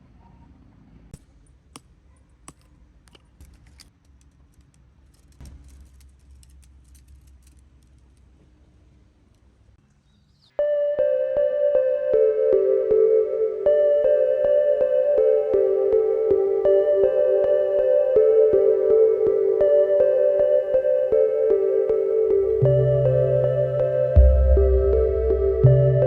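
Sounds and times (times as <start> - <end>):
small metal objects clicking: 2.5 - 8.4
soft ambient music: 10.6 - 26.0.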